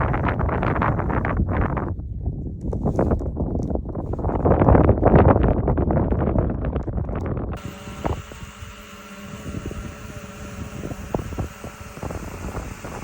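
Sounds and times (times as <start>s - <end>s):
wind buffeting the microphone: 0.0s - 13.0s
drone motors humming: 7.6s - 13.0s.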